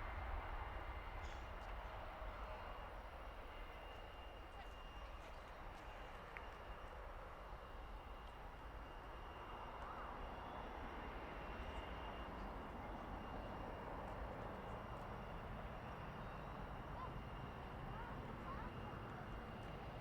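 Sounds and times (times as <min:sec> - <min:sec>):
distant jet aircraft: 0:00.0 - 0:20.0.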